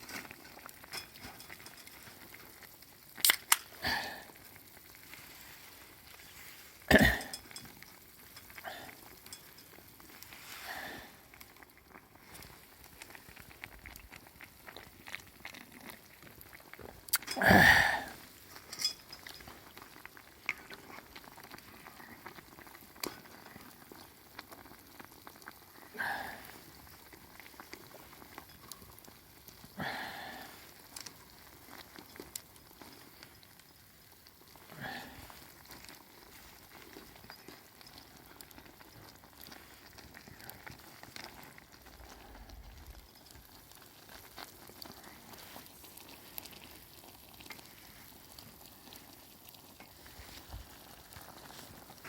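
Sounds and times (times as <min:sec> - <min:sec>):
fire crackling: 0:00.0 - 0:52.0
food sizzling over fire: 0:00.0 - 0:52.0.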